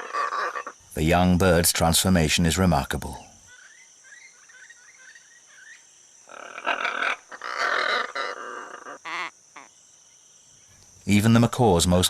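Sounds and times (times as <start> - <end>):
macaws squawking: 0.0 - 0.8, 6.3 - 9.7
high insect drone: 0.0 - 12.0
faint bird chirps: 3.1 - 10.8.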